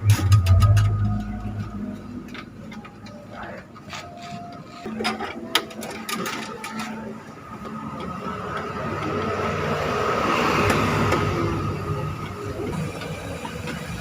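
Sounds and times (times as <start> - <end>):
vehicle approaching: 0.0 - 3.4, 7.4 - 14.0.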